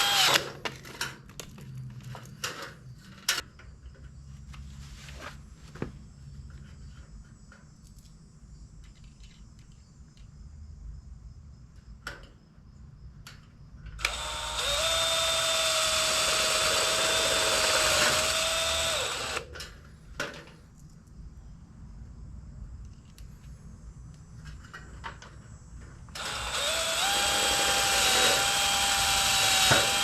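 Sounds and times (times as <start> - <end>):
power drill running: 0.0 - 0.4, 14.0 - 19.5, 26.2 - 30.0.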